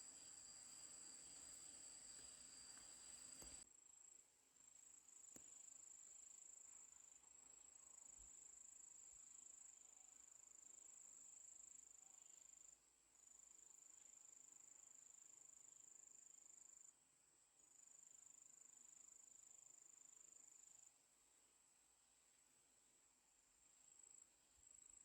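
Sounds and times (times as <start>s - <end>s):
cricket trill: 0.0s - 3.6s.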